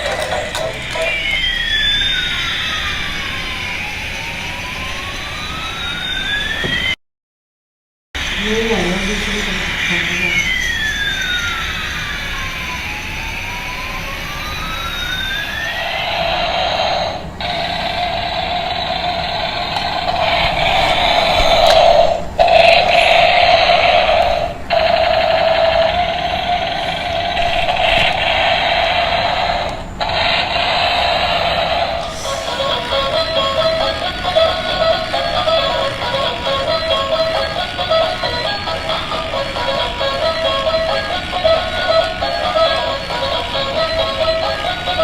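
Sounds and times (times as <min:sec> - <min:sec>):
toy electronic siren wailing: 0:00.0 - 0:07.0, 0:08.7 - 0:45.0.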